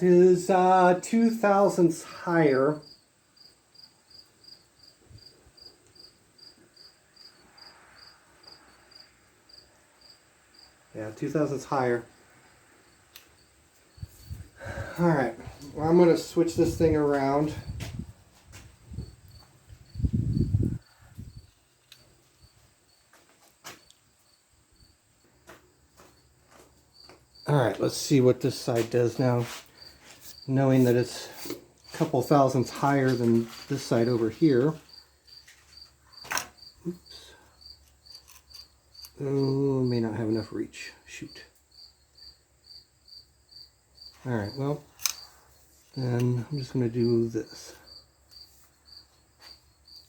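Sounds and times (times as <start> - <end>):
cricket chirping: 2.0 - 18.1, 18.8 - 28.8, 29.6 - 50.0
sharp clicks: 44.9 - 45.3.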